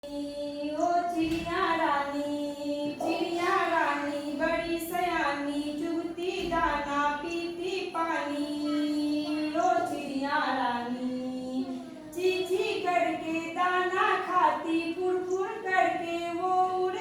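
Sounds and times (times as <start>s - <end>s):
person singing a children's song: 5.5s - 17.0s.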